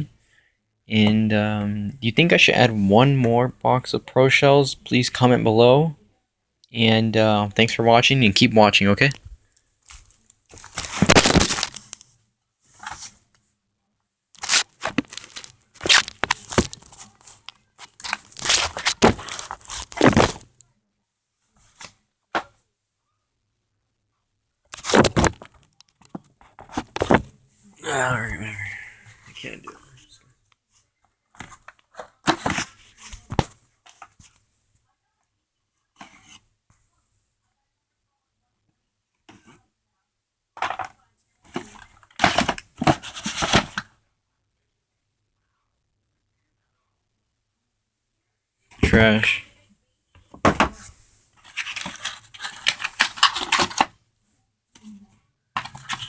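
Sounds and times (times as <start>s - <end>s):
cardboard torn and crushed: 10.6s - 11.8s, 14.4s - 17.0s, 18.0s - 20.5s, 24.8s - 25.4s
cardboard box tearing: 14.4s - 16.9s.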